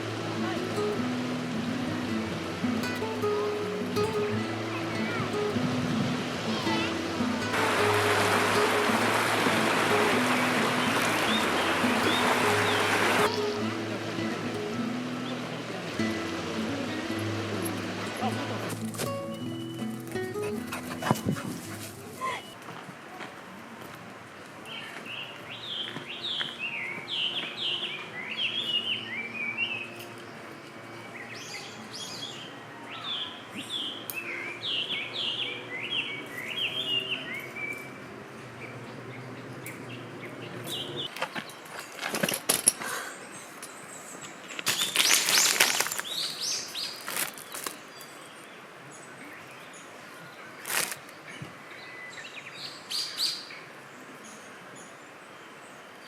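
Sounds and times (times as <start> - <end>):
birds chirping and singing: 7.6 - 13.6.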